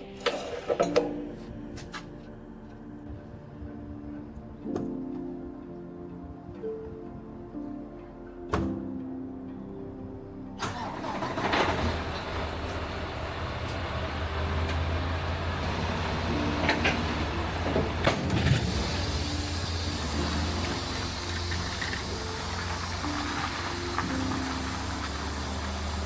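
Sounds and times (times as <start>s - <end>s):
background music: 0.0s - 26.0s
vehicle engine starting and running: 10.6s - 26.0s.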